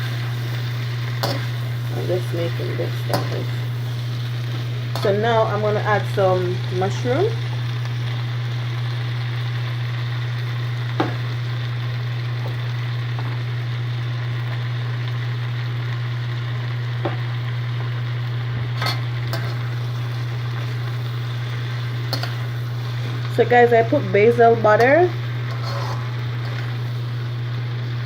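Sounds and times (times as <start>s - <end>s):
low hum: 0.0s - 9.0s
food sizzling in a pan: 0.0s - 28.0s.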